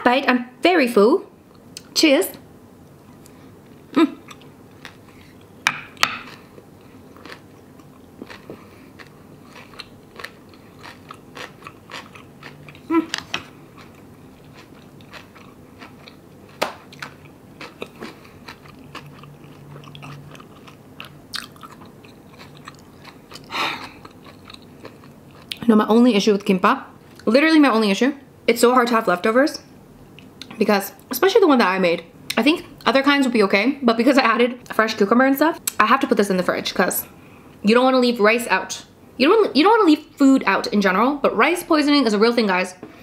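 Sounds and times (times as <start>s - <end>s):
person chewing food: 3.0s - 25.6s.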